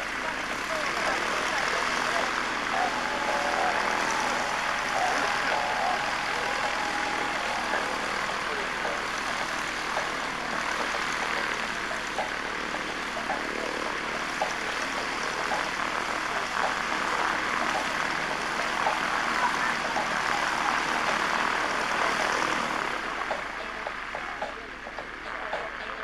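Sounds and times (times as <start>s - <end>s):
propeller aircraft engine drone: 0.0s - 26.0s.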